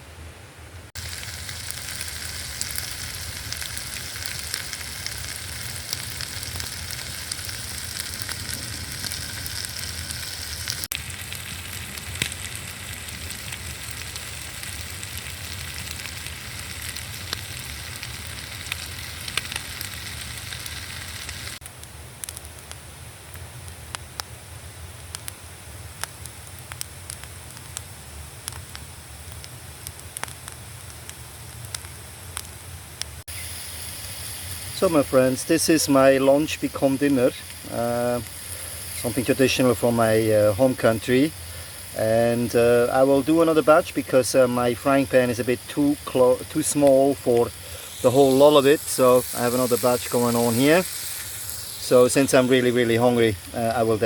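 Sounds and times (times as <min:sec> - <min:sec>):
food sizzling in a frying pan: 0:01.0 - 0:21.6, 0:33.2 - 0:54.0.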